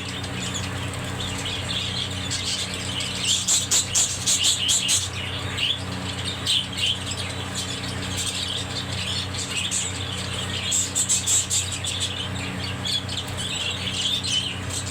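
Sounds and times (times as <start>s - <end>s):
budgerigars chirping and chattering: 0.0s - 14.9s
steady low hum: 0.0s - 14.9s.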